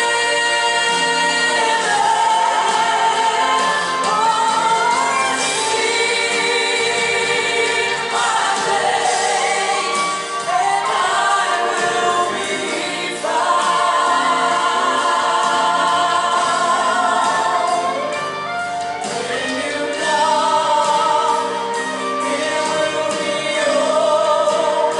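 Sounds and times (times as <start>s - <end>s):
group singing gospel song: 0.0s - 24.9s
instrumental backing: 0.0s - 24.9s.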